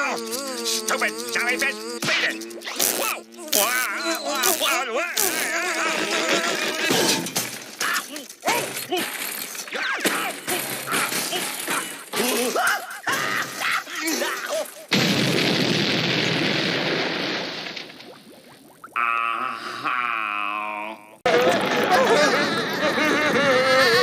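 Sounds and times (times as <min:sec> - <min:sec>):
cartoon sounds and cries: 0:00.0 - 0:07.2
loud cartoon explosion: 0:14.9 - 0:18.0.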